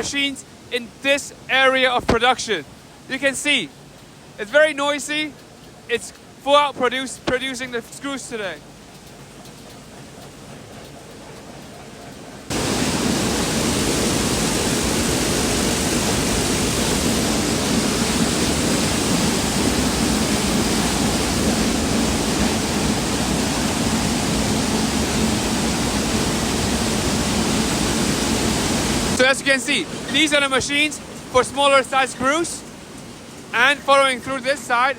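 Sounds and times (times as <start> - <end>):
factory machines clattering: 4.4 - 13.5.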